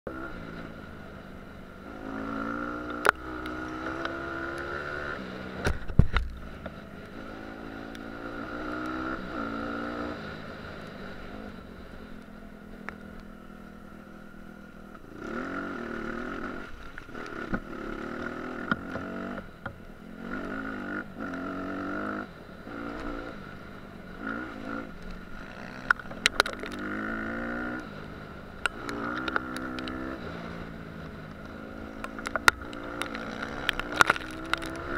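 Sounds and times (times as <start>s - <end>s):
dirt bike engine revving: 1.8s - 5.6s, 7.1s - 10.5s, 15.1s - 19.4s, 20.2s - 23.4s, 24.2s - 28.0s, 28.6s - 30.8s, 31.6s - 34.9s.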